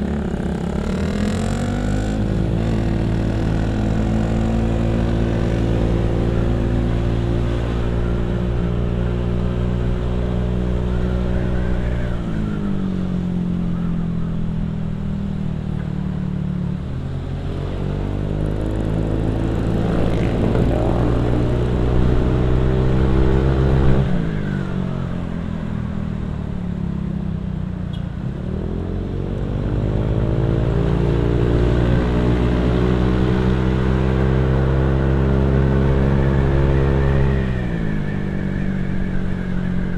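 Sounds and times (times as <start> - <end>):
motorcycle engine revving: 0.0 - 13.9, 17.1 - 25.3.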